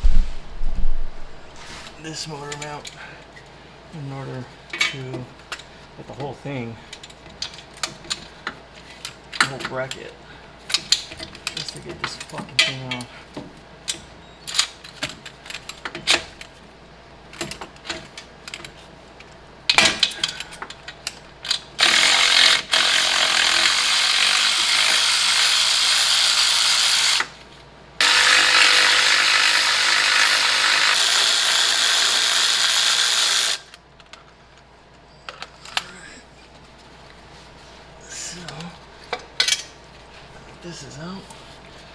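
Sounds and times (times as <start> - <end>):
power tool spinning bolts: 21.5 - 27.4, 28.0 - 33.8.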